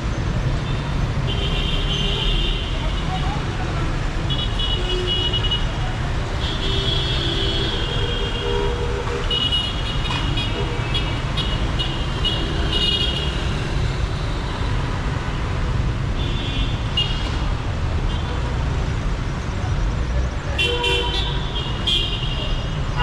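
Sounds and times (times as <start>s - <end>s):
traffic engines rumbling: 0.0s - 23.0s
car horns honking: 20.6s - 23.0s.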